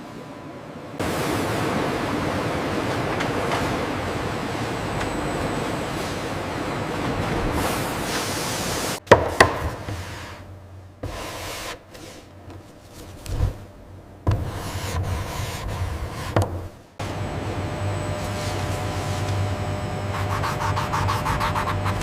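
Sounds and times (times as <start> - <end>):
machine noise: 1.0 - 9.0, 17.0 - 22.0
sharp wooden knocks: 9.1 - 9.8.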